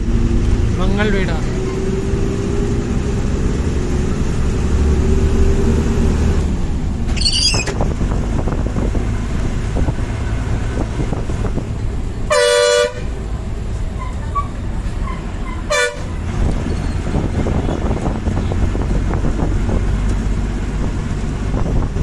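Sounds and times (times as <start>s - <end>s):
bus engine: 0.0s - 22.0s
road noise: 0.0s - 22.0s
bus horn: 12.2s - 13.3s, 14.0s - 16.3s.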